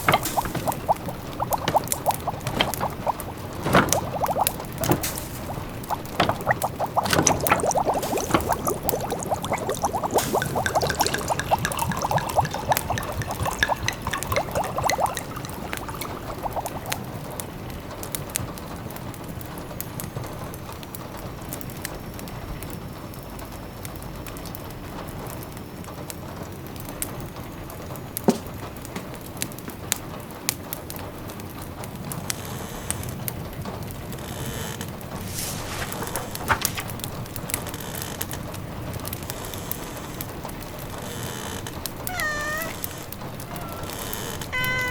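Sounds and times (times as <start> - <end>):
liquid gurgling: 0.0 - 17.4, 35.1 - 37.6
rain pattering: 0.0 - 21.8, 34.8 - 44.9.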